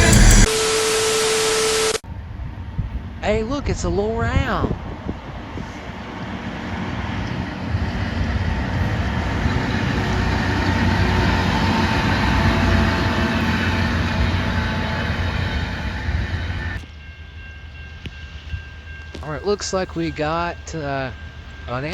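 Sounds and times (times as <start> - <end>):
diesel train passing: 0.0 - 0.5, 2.0 - 21.9
train wheels on rail: 4.7 - 21.9.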